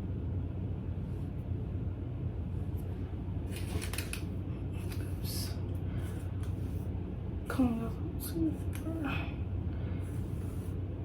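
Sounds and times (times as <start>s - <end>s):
low background hum: 0.0s - 11.0s
rustling and clicking: 3.5s - 5.1s.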